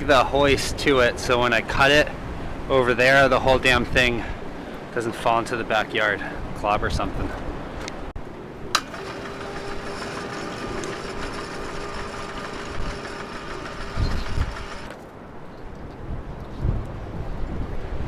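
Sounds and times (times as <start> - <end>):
electric motor humming: 8.7 - 14.9
motor switch click: 8.7 - 15.0.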